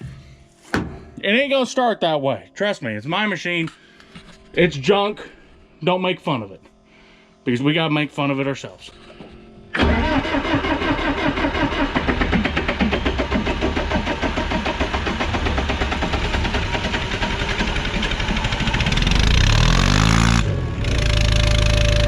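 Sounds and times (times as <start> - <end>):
diesel engine cranking and starting: 9.7 - 22.0.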